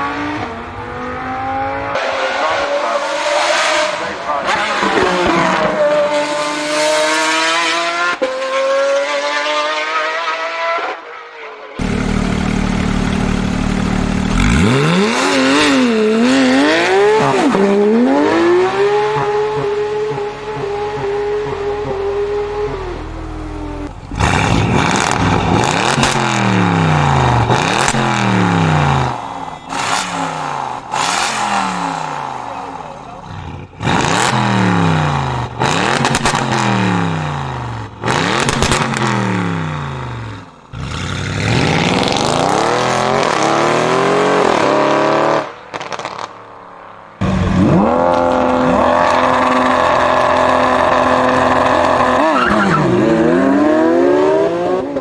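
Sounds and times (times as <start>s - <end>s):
steady lower-pitched engine: 11.8s - 17.4s
car engine accelerating hard: 11.8s - 46.2s, 47.2s - 55.0s.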